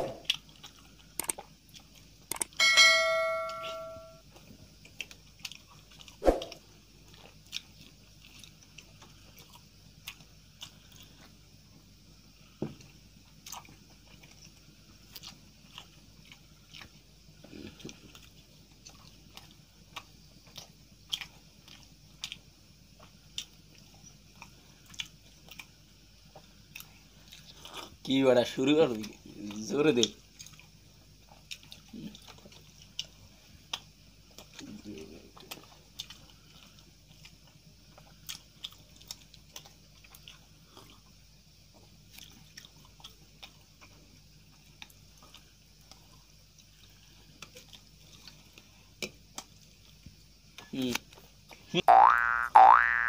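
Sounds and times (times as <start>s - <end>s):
person chewing wetly: 0.0s - 2.6s, 4.3s - 28.1s, 28.9s - 53.0s
bell-like ding: 2.6s - 4.2s.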